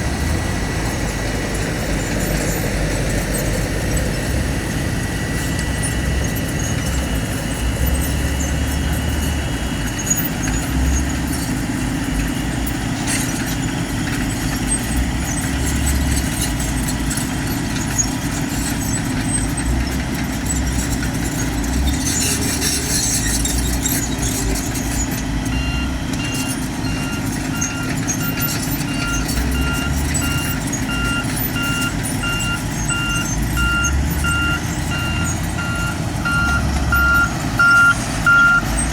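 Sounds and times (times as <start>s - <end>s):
heavy diesel engine rumbling: 0.0s - 38.9s
reversing alarm beeping: 25.5s - 38.9s.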